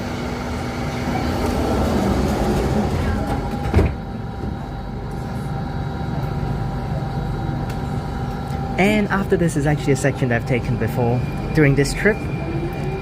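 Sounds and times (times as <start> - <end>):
metro train car hum: 0.0 - 13.0
train doors thud: 1.5 - 4.6.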